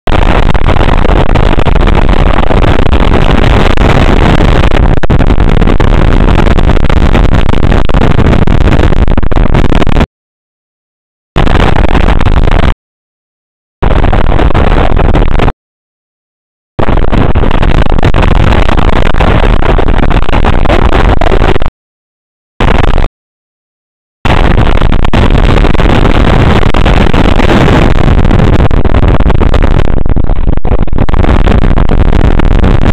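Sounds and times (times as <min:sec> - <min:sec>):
wind buffeting microphone: 0:24.3 - 0:32.9.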